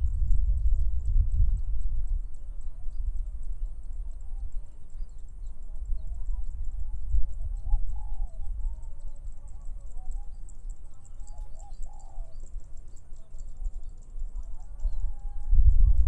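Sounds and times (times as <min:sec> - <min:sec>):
wind rumble on microphone: 0:00.0 - 0:16.0
dove cooing: 0:05.6 - 0:15.3.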